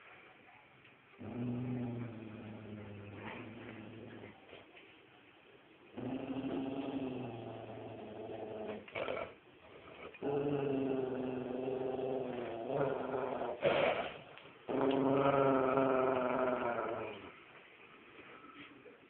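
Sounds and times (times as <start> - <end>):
dog growling: 1.2 - 4.4, 5.9 - 17.4.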